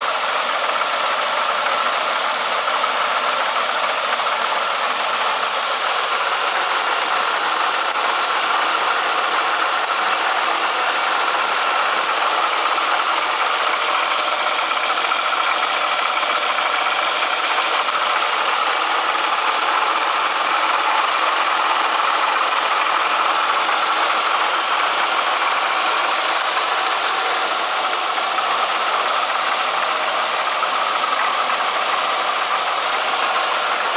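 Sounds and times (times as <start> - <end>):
car engine running: 0.0 - 33.9
supercharger rattle: 0.0 - 33.9.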